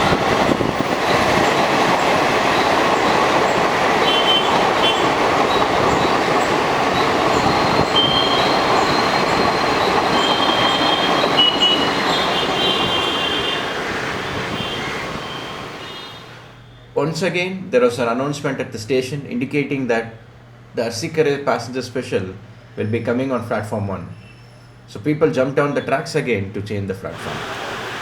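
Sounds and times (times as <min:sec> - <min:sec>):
train wheels rumbling on rails: 0:00.0 - 0:16.6
high wheel squeals: 0:00.0 - 0:17.0, 0:24.0 - 0:24.8.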